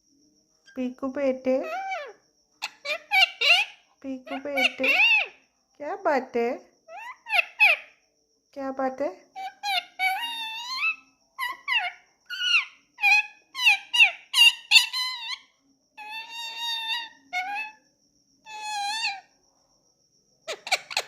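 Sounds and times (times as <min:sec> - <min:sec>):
parrot chattering: 0:01.5 - 0:05.3, 0:06.9 - 0:07.9, 0:09.4 - 0:15.4, 0:16.0 - 0:17.8, 0:18.5 - 0:19.2, 0:20.5 - 0:21.0
parrot squawk: 0:01.6 - 0:05.4, 0:06.9 - 0:07.9, 0:09.4 - 0:15.4, 0:16.0 - 0:17.8, 0:18.5 - 0:19.2, 0:20.5 - 0:21.0.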